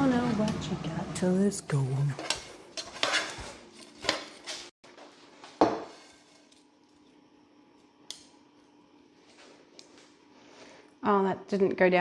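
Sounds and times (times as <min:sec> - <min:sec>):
kitchen utensils and dishes clattering: 0:02.2 - 0:04.7.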